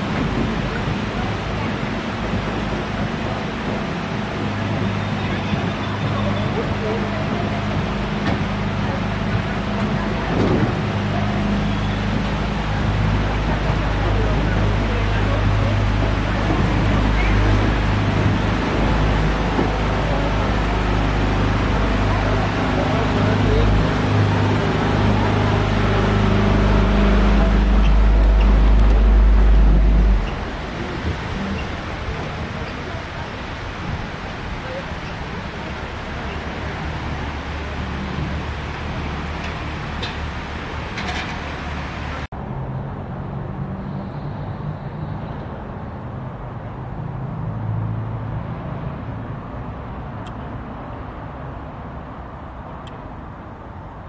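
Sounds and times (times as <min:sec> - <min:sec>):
boat motor humming: 0:00.0 - 0:42.3
vehicle engine running: 0:00.0 - 0:42.3.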